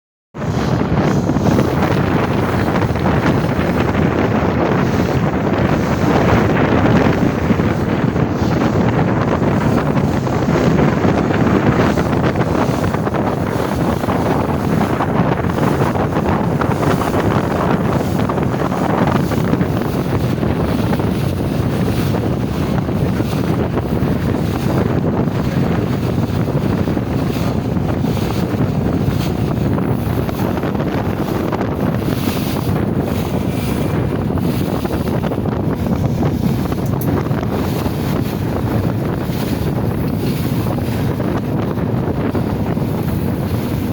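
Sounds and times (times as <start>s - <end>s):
ferry boat noise: 0.3s - 43.9s
wind buffeting microphone: 0.3s - 43.9s
rushing water: 0.4s - 43.9s.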